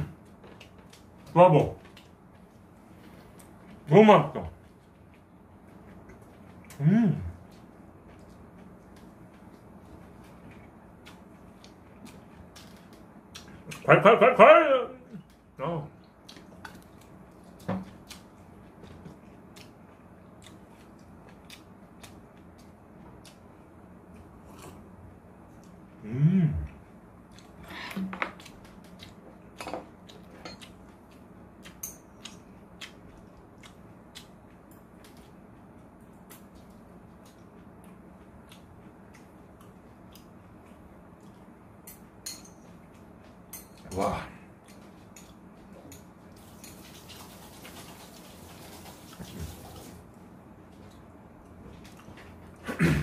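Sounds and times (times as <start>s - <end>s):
person chewing food: 0.0s - 3.9s, 4.6s - 13.9s, 16.0s - 26.0s, 26.6s - 52.7s
low steady hum: 0.0s - 53.0s
person chewing crunchy food: 5.0s - 13.9s, 26.7s - 41.8s.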